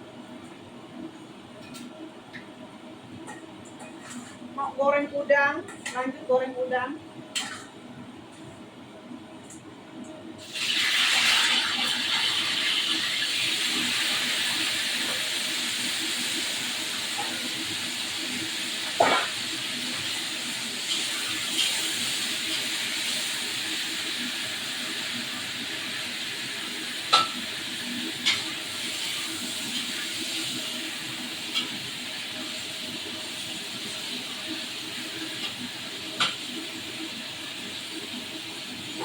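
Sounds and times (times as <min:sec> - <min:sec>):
shrimp sizzling in oil: 0:10.4 - 0:39.0.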